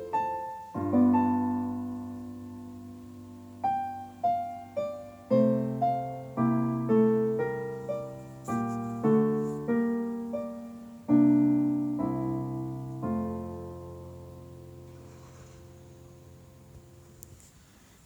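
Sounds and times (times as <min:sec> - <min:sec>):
piano music: 0:00.0 - 0:17.2.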